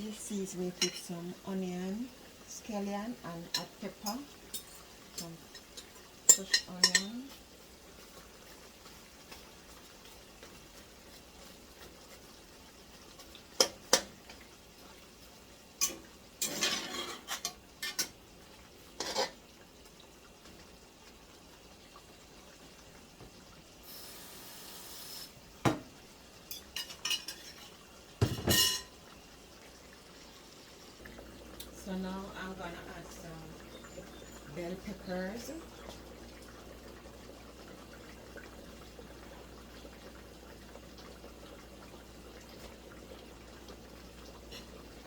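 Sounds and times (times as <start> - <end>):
utensils and dishes clattering: 15.8 - 18.2, 19.0 - 19.4, 26.5 - 29.0
brief hiss: 23.8 - 25.4.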